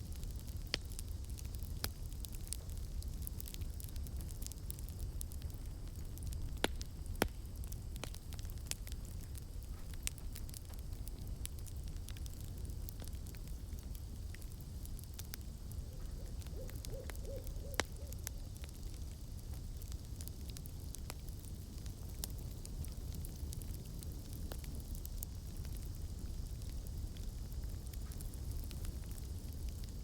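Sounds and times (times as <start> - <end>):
campfire crackling: 0.0 - 30.0
owl hooting: 16.0 - 18.2.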